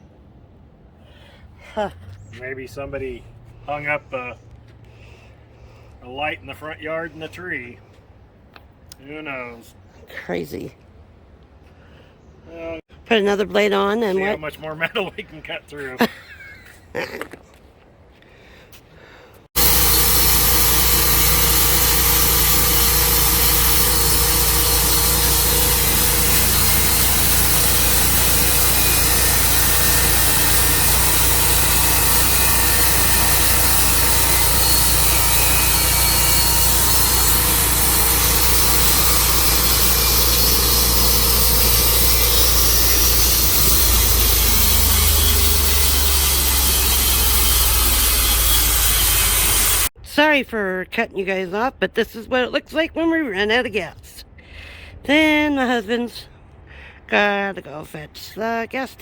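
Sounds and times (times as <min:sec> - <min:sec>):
band blade sawing wood: 0:19.6 - 0:49.9
gasoline engine running: 0:19.6 - 0:49.9.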